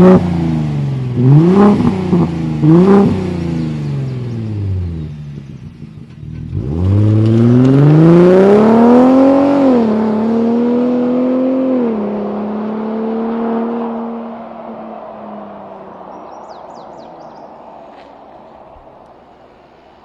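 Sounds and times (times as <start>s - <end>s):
truck exhaust accelerating hard: 0.0s - 15.4s.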